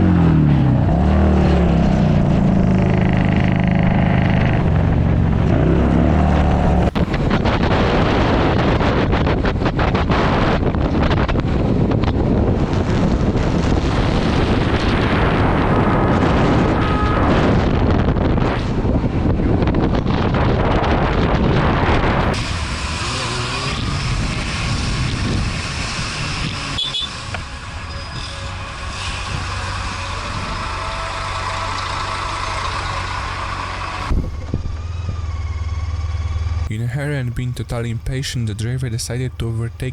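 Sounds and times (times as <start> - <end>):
motorcycle engine running: 0.0 - 7.7, 22.2 - 36.7
wind buffeting microphone: 4.4 - 26.7, 34.0 - 35.6.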